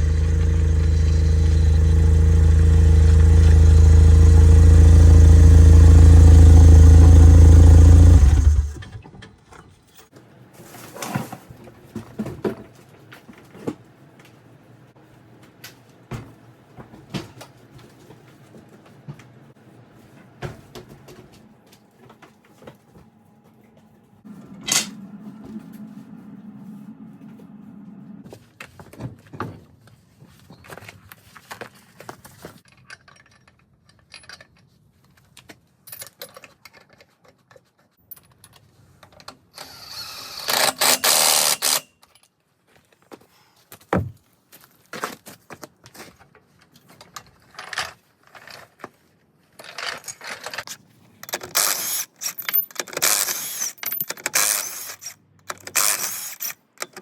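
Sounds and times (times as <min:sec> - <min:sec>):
steady low hum: 0:00.0 - 0:08.9, 0:24.3 - 0:28.3.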